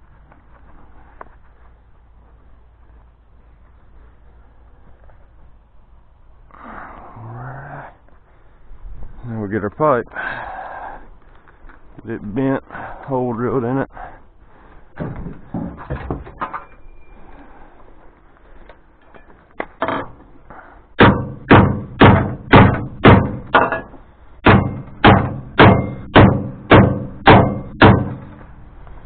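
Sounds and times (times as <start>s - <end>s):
hammer striking steel pipe: 21.0s - 28.4s.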